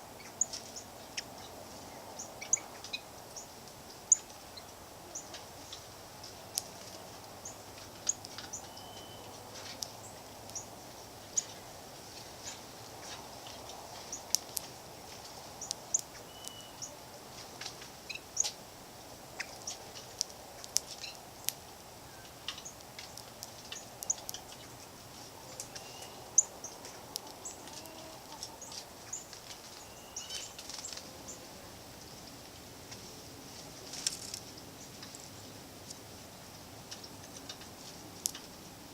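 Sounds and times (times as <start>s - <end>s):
low background noise: 0.0s - 38.9s
songbird chip notes: 7.4s - 11.6s, 15.6s - 17.0s, 19.4s - 32.3s.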